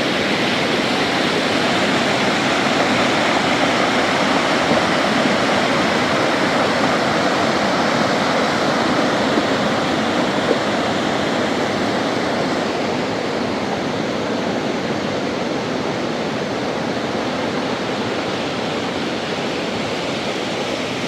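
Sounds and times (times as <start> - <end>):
water rushing: 0.0 - 21.0.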